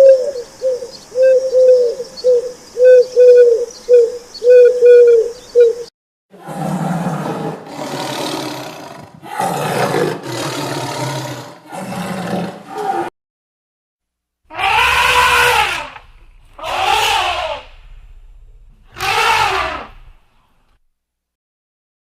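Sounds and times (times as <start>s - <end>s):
animal calls rising and falling: 14.5s - 17.8s, 18.9s - 20.1s
rough animal calls: 14.5s - 20.2s.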